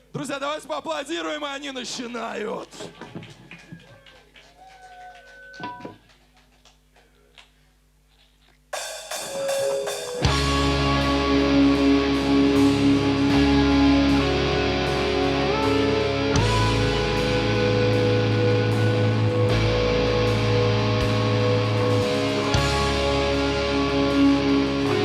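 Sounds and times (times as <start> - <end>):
metal band playing live: 8.8 - 25.0.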